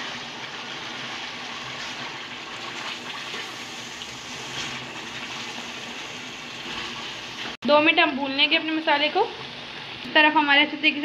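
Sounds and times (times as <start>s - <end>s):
food sizzling in oil: 0.0s - 7.6s.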